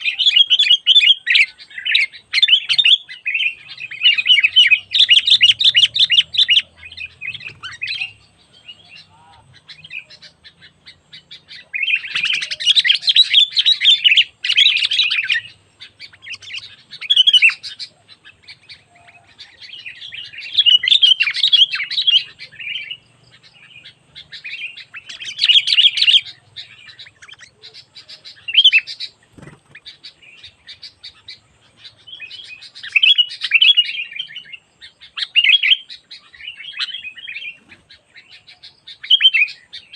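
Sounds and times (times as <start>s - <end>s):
bird chattering chirps: 0.0s - 39.9s.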